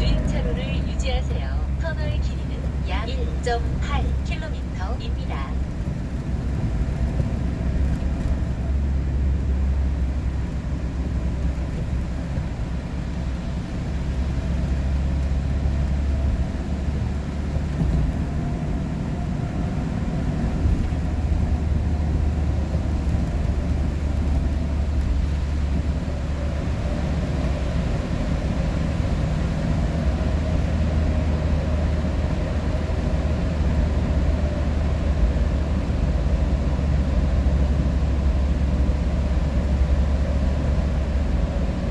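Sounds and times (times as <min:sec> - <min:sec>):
vehicle road noise rumble: 0:00.0 - 0:41.9.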